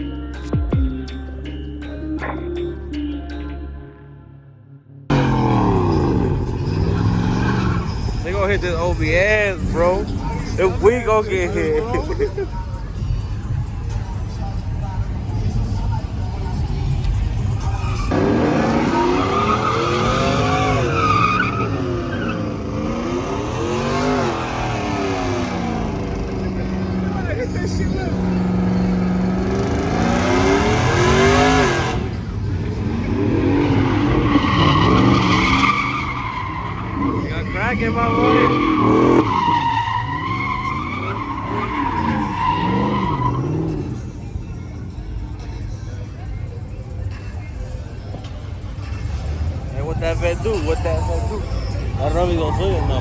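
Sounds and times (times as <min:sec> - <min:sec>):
tyre squeal: 0:05.1 - 0:12.0, 0:17.5 - 0:44.4, 0:48.1 - 0:53.0
truck engine revving: 0:05.1 - 0:53.0.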